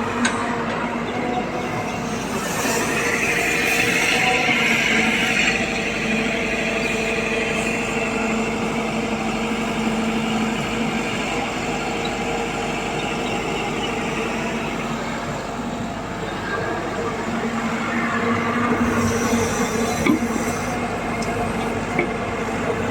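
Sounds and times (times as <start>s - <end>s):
heavy diesel engine humming: 0.0s - 22.9s.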